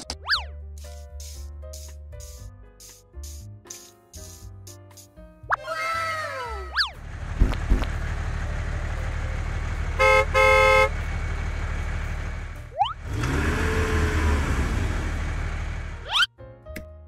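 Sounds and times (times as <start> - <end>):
tractor engine running: 6.9 - 16.1
horn tooting: 9.9 - 11.2.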